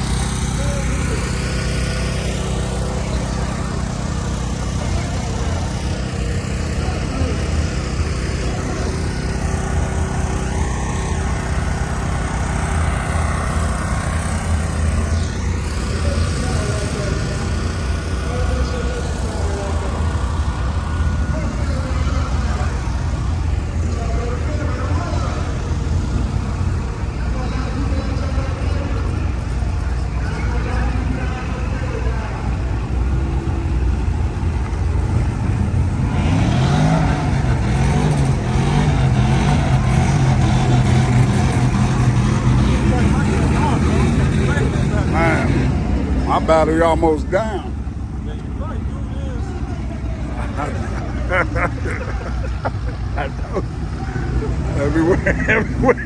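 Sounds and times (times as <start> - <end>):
vehicle engines rumbling: 0.0 - 56.0.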